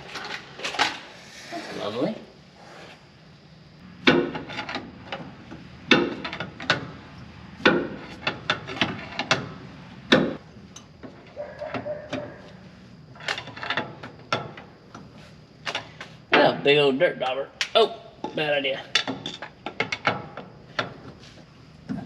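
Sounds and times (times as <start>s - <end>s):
tools scraping on metal: 10.7s - 15.4s.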